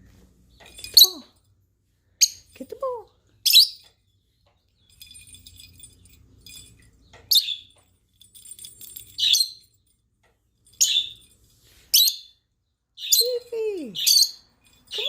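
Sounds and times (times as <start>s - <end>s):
faint jingling and rattling: 0.0s - 15.0s
bird chirps: 6.8s - 7.8s, 9.0s - 9.8s, 10.7s - 11.3s, 11.9s - 15.0s.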